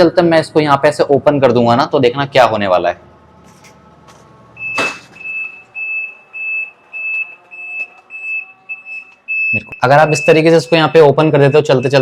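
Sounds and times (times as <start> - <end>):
washing machine spinning: 4.6 - 9.5
washing machine alarm beeping: 4.6 - 12.0.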